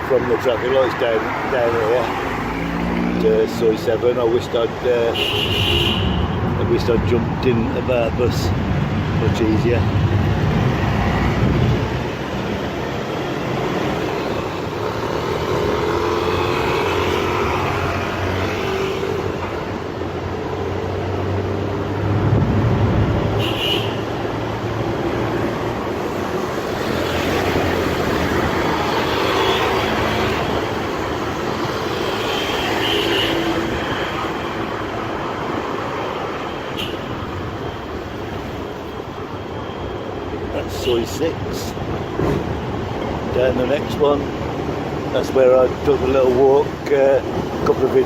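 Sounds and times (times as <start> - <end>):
road noise: 0.0 - 48.0
traffic: 0.0 - 48.0.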